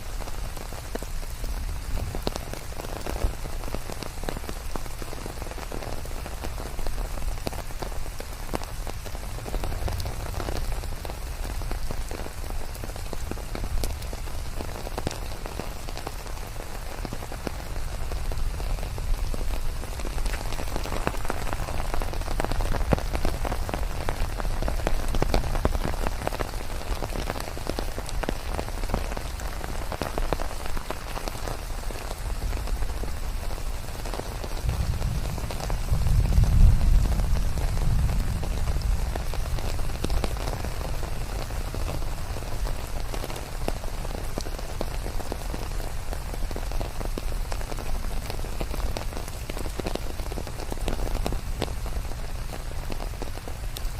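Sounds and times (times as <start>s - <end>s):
rain pouring down: 0.0s - 53.9s
raindrops pattering: 0.0s - 53.9s.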